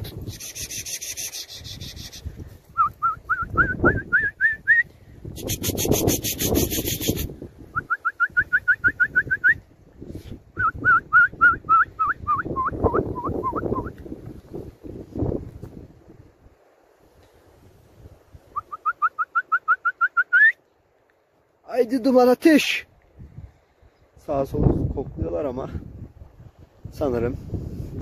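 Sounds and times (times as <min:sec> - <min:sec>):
wind buffeting microphone: 0:00.0 - 0:00.5, 0:01.6 - 0:18.7, 0:22.8 - 0:28.0
bird whistling rising notes: 0:18.5 - 0:20.6.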